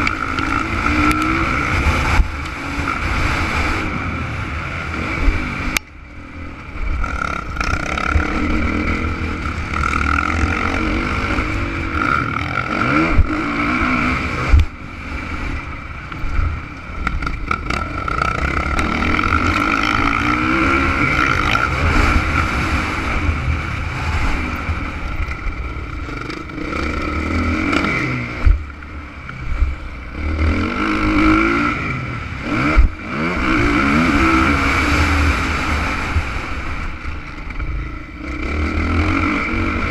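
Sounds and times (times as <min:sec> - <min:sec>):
motocross bike engine revving: 0:00.0 - 0:39.9
sharp thumps: 0:27.6 - 0:29.8.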